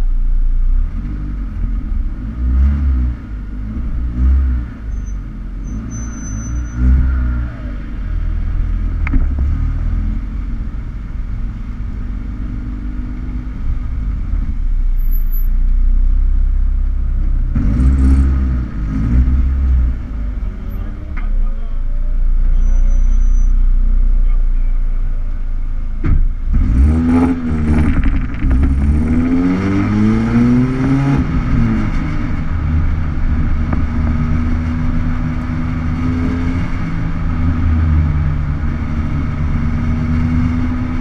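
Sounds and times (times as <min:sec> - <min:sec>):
car engines idling: 0:07.0 - 0:17.6, 0:18.6 - 0:26.6, 0:31.2 - 0:41.0.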